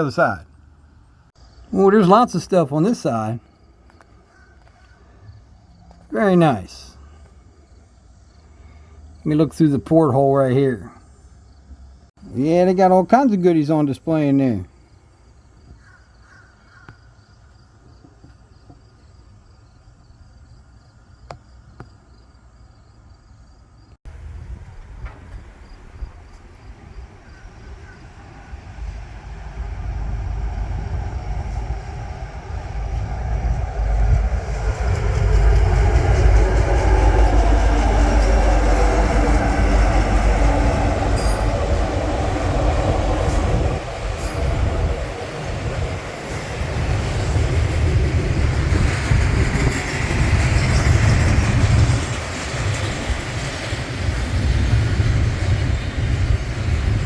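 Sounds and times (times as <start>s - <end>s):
train rumbling past: 0.0s - 19.6s, 24.1s - 57.0s
wheels clacking over rail joints: 24.1s - 57.0s
wheel squeal: 31.0s - 57.0s.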